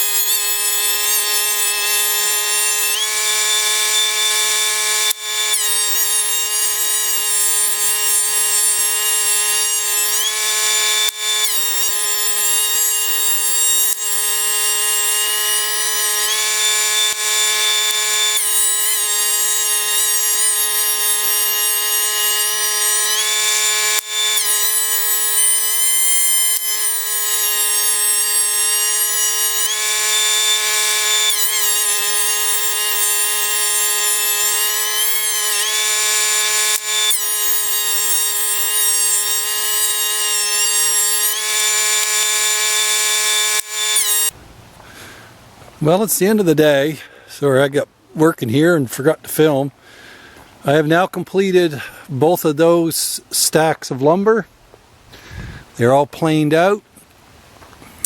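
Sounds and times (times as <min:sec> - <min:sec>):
planer cutting boards: 0:00.0 - 0:44.4
planer motor whine: 0:00.0 - 0:44.4.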